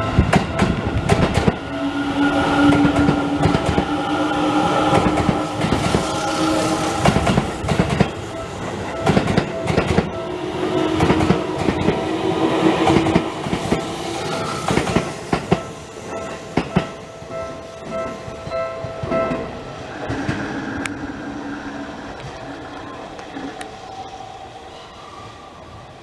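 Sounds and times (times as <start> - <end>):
train wheels clacking over rail joints: 0.0 - 19.5
level crossing warning bell ringing: 0.0 - 20.2
electric train passing: 0.0 - 26.0.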